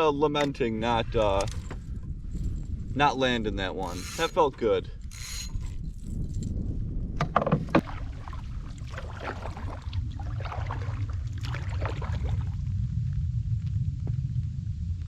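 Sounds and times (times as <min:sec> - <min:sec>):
low rumble: 0:00.0 - 0:04.2, 0:04.8 - 0:15.0
paddle strokes in water: 0:07.6 - 0:12.5
water splashing: 0:07.6 - 0:12.7.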